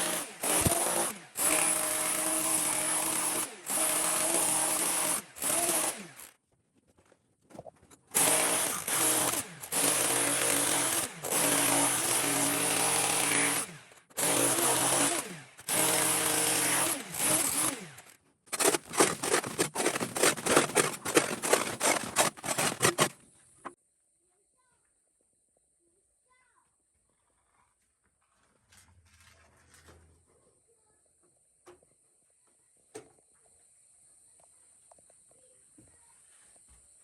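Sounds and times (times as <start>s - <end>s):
power tool working rock: 0.0s - 6.3s, 8.1s - 23.3s.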